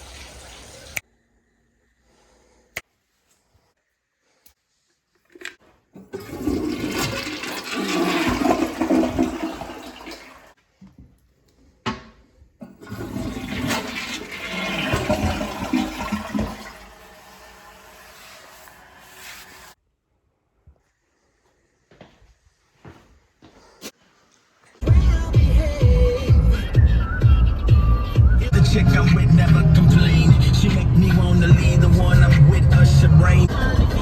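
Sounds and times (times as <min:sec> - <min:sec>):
toilet flushing: 0:00.0 - 0:01.0, 0:06.0 - 0:10.6, 0:12.6 - 0:19.8.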